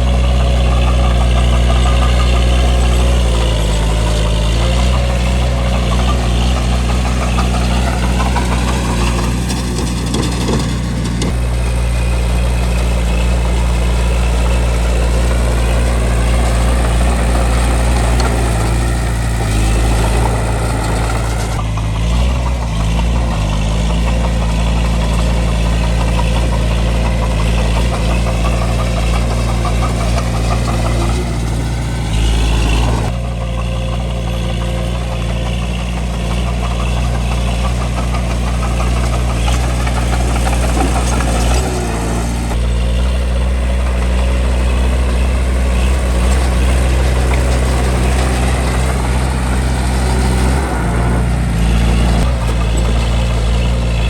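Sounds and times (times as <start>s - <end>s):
bulldozer diesel engine running: 0.0s - 54.0s
mechanical clatter: 0.6s - 33.2s.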